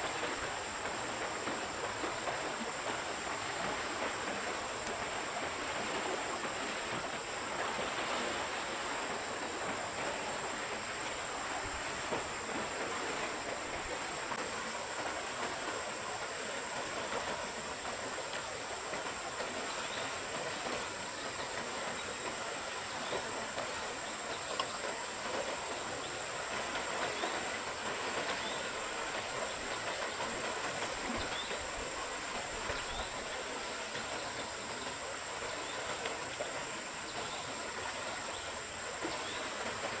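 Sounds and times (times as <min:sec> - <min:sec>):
stream running: 0:00.0 - 0:40.0.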